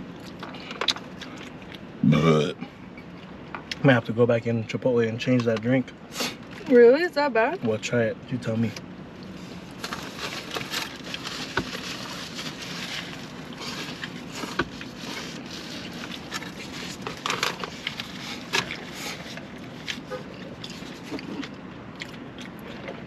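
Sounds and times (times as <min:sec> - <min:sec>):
steady background hum: 0:00.0 - 0:23.0
eating clicks and crunches: 0:16.0 - 0:23.0.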